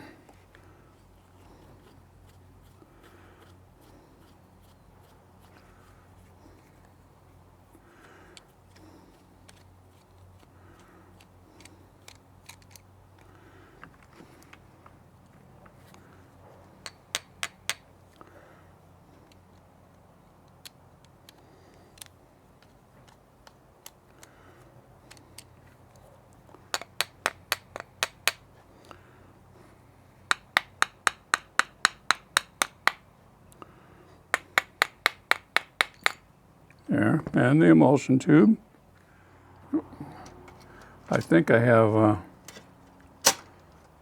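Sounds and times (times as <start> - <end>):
light metal tool taps: 16.8 - 17.8, 34.3 - 36.2.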